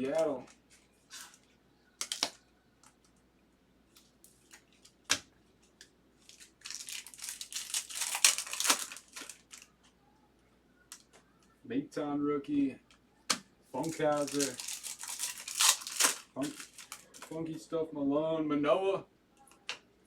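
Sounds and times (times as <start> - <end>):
wrapper being torn and crinkled: 2.0 - 2.4, 6.2 - 9.7, 13.8 - 17.4.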